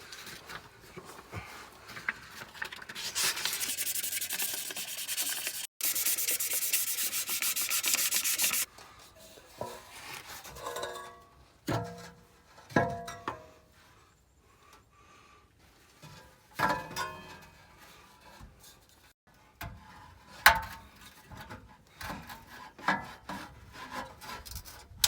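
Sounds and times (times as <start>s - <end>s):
rasping and scraping on metal pipe: 3.0s - 8.7s.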